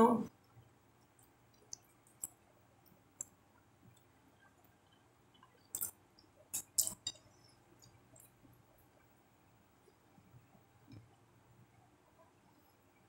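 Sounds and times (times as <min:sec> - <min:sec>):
mouth clicks and lip smacks: 0:01.1 - 0:02.4, 0:05.3 - 0:07.1.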